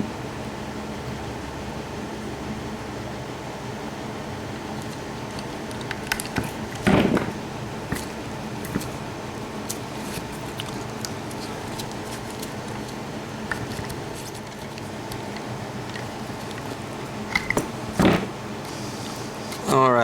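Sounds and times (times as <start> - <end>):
wire snippers clicking and snipping: 4.8 - 7.3.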